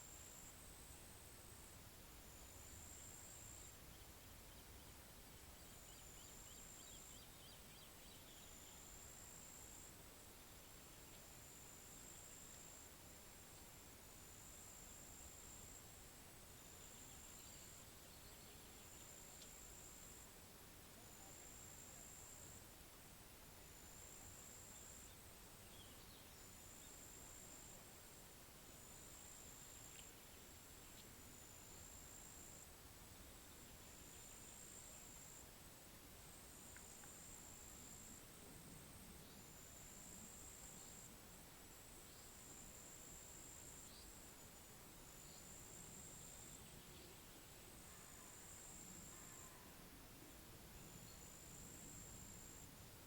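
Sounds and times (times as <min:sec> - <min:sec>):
low background hiss: 0:00.0 - 0:53.0
faint bird chirps: 0:02.4 - 0:12.8, 0:16.5 - 0:20.3, 0:23.9 - 0:27.9, 0:42.0 - 0:49.9, 0:50.7 - 0:52.7.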